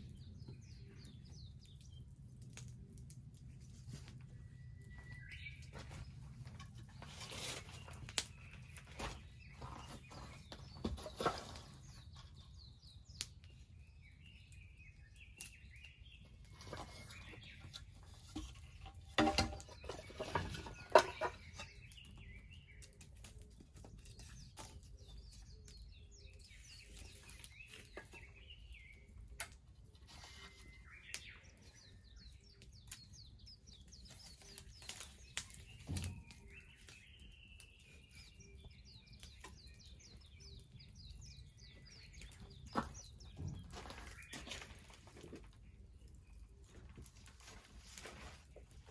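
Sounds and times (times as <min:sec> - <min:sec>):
wood bonfire crackling and popping: 0:00.0 - 0:05.7, 0:32.2 - 0:37.8
birds chirping and trilling: 0:04.2 - 0:48.9.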